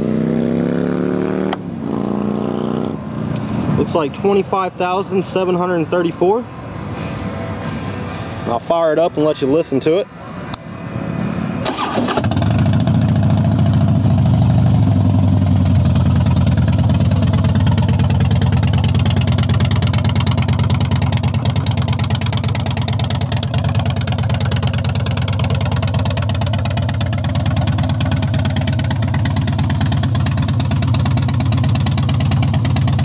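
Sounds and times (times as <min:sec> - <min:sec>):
electric starter cranking: 0:11.6 - 0:13.1
motorcycle engine idling: 0:12.2 - 0:33.0.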